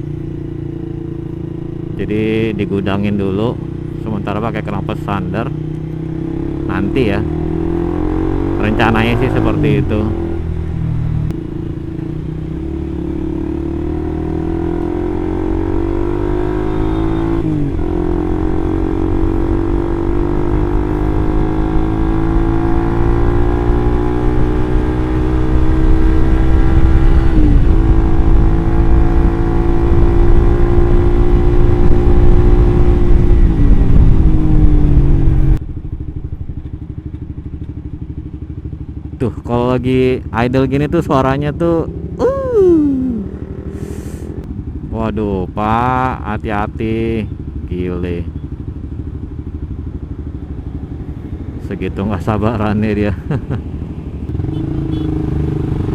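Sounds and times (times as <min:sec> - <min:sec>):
motorcycle engine through gears: 0:00.0 - 0:39.4.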